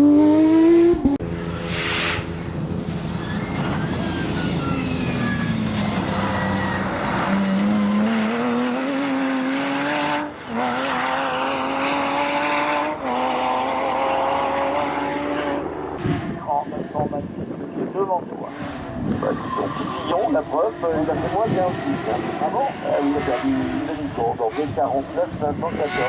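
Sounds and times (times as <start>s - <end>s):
gear upshifts: 0.0s - 12.0s
race car engine accelerating: 0.0s - 26.0s.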